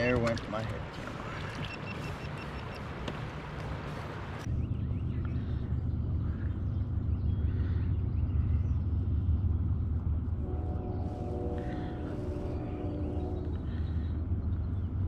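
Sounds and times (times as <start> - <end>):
faint steady tones: 0.0 - 15.0
muffled low rumble: 3.8 - 15.0.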